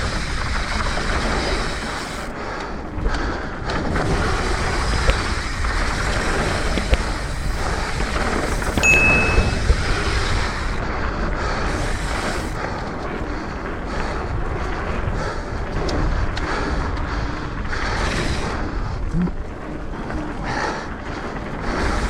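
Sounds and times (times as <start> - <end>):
wind buffeting microphone: 10.5 - 22.0
bike tyres rolling over dirt: 11.1 - 22.0.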